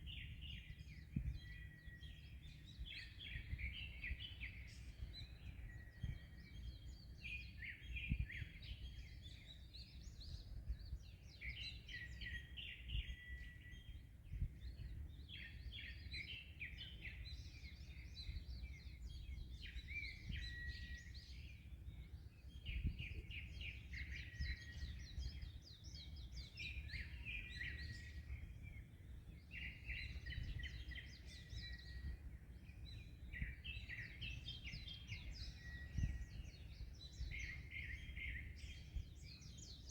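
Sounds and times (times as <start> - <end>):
wind on microphone: 0.0 - 16.0, 16.8 - 39.9
songbirds singing and chirping: 0.0 - 39.9.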